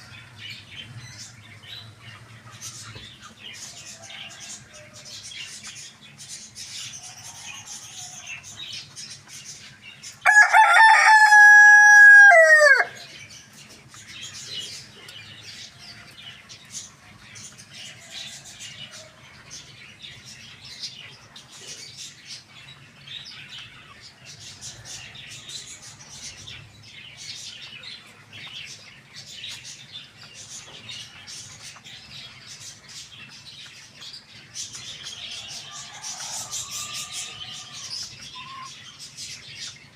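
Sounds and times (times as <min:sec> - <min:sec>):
small birds chirping: 0:00.0 - 0:39.9
rooster crowing: 0:10.2 - 0:13.1, 0:35.3 - 0:38.1.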